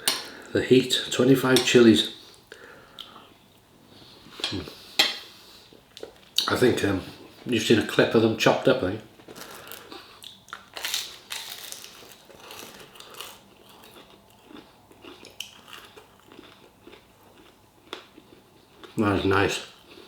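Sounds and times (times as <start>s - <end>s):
small crunches and clicks: 9.2s - 14.0s
person chewing food: 9.2s - 19.0s.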